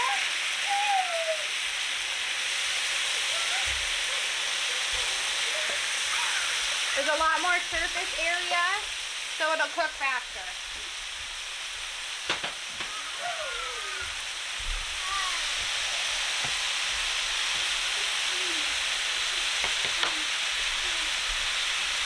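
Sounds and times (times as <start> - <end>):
meat sizzling on a griddle: 0.0 - 22.0.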